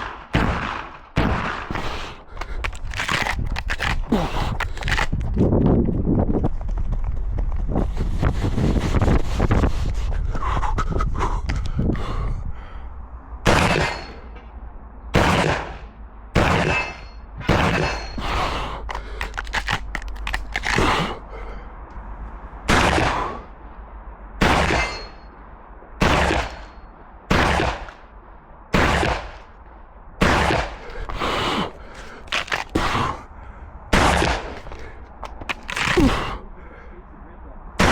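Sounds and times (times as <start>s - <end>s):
shotgun shots echoing: 0.0s - 2.0s, 13.5s - 14.3s, 15.2s - 18.3s, 22.7s - 23.5s, 24.4s - 25.2s, 26.0s - 28.0s, 28.7s - 29.5s, 30.2s - 30.9s, 33.9s - 34.7s.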